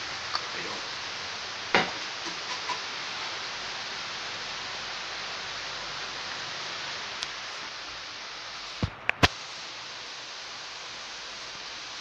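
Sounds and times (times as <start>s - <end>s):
rain hissing: 0.0s - 12.0s.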